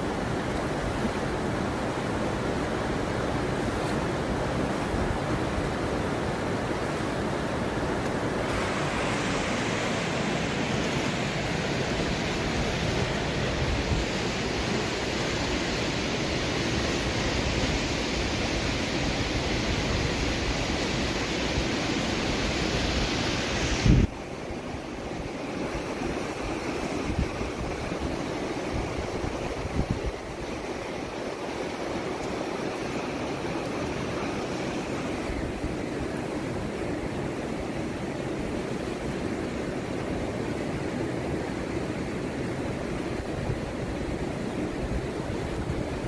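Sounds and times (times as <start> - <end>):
fast river rushing: 0.0 - 46.0
wind on microphone: 4.6 - 31.0.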